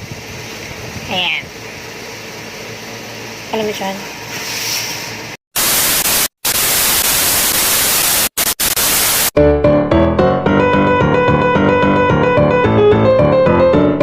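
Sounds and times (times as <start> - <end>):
tv static hiss: 5.6 - 9.4
keyboard or piano music: 9.4 - 14.0.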